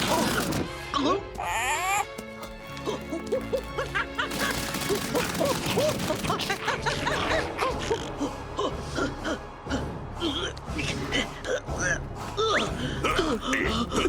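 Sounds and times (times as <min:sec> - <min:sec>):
fast cartoon action music: 0:00.0 - 0:01.8, 0:02.5 - 0:14.0.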